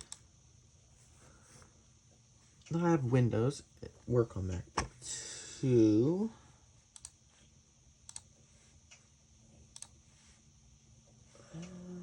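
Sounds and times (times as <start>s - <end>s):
computer mouse clicks: 0.0s - 0.2s, 6.9s - 7.2s, 8.1s - 8.3s, 9.7s - 10.0s.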